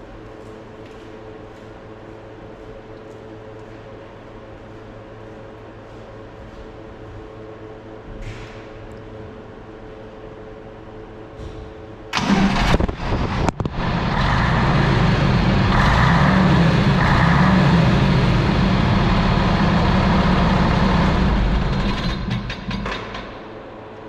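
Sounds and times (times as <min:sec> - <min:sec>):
diesel engine starting and running: 0:12.1 - 0:23.5.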